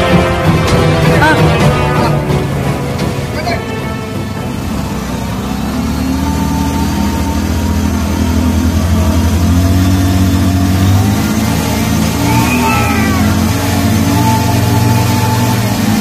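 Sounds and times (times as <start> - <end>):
motorcycle engines at high revs: 4.4 - 16.0
wheels spinning in dirt: 5.3 - 16.0.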